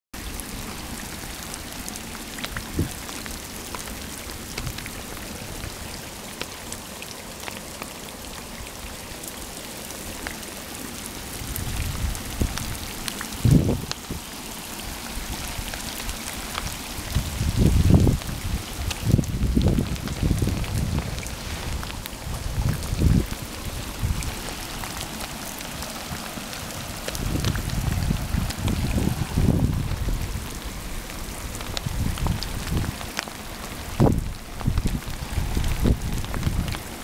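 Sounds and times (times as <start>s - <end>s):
heavy rain hissing: 0.2s - 37.0s
raindrops ticking: 0.2s - 37.0s
low rumbles: 17.0s - 36.8s.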